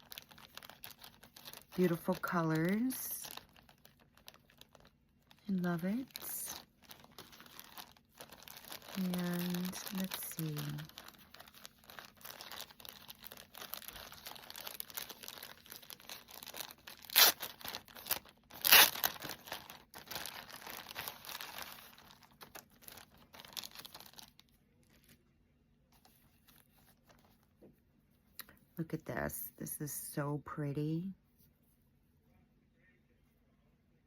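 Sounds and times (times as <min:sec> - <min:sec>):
packaging crinkling and rustling: 0:00.0 - 0:25.2, 0:26.0 - 0:27.6.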